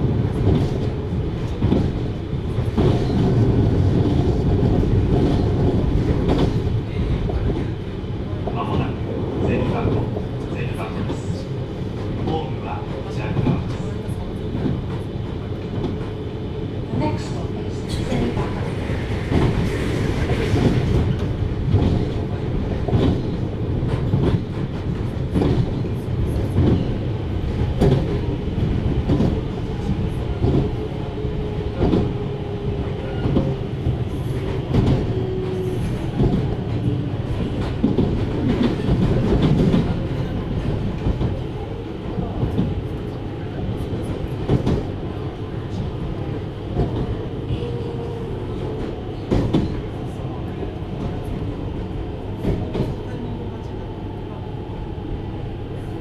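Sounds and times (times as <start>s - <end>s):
train wheels rumbling on rail: 0.0s - 56.0s
clacks over rail joints: 19.3s - 30.8s, 34.3s - 41.4s.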